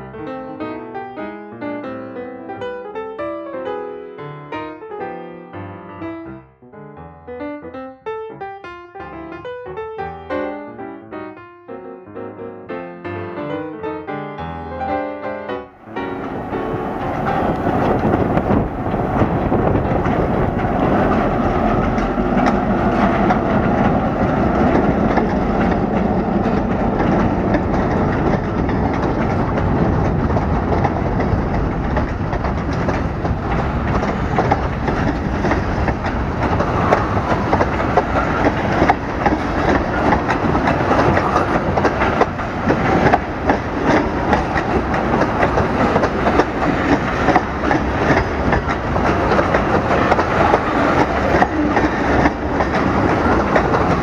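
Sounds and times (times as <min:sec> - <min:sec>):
freight train wheels clacking: 0:15.9 - 0:54.0.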